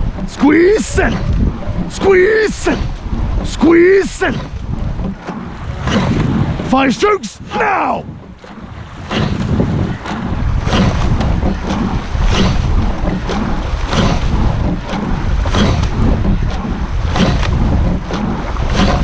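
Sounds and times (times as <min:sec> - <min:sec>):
oar clunk and splash: 0:00.0 - 0:19.0
rush of rowing boat: 0:00.0 - 0:19.0
wind buffeting microphone: 0:00.0 - 0:19.0.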